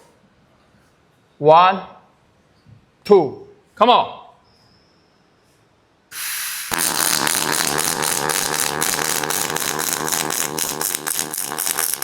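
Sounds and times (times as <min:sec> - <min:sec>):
welding arc crackling: 0:06.1 - 0:12.0
low buzz: 0:06.5 - 0:12.0.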